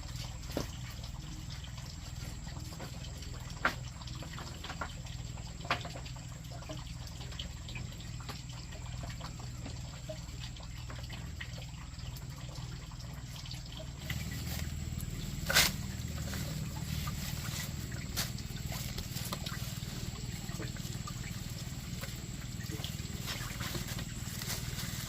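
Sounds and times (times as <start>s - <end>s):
water dripping: 0.0s - 25.0s
low hum: 12.1s - 25.0s.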